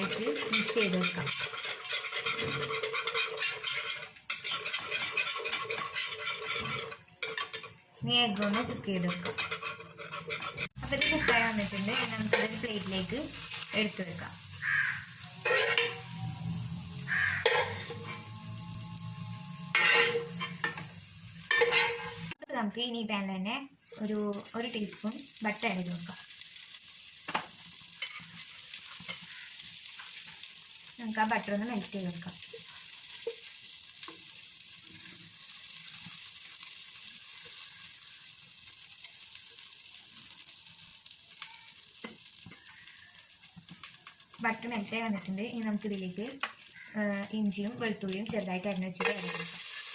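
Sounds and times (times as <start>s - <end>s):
spatula scraping a pan: 0.0s - 7.8s, 8.4s - 22.4s, 27.6s - 31.4s, 32.4s - 38.3s, 49.0s - 49.9s
egg sizzling in a frying pan: 0.0s - 22.4s, 23.7s - 49.9s.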